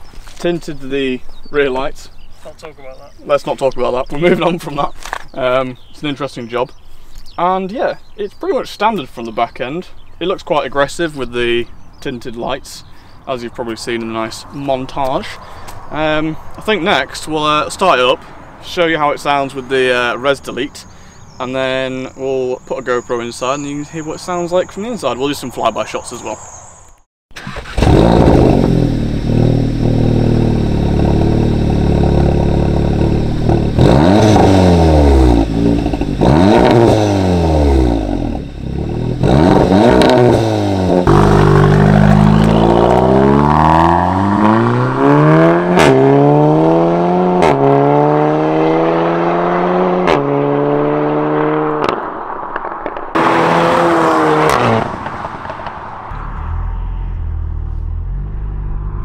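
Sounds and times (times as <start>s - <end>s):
exhaust cracks: 27.3s - 59.0s
car engine idling and revving: 27.4s - 59.0s.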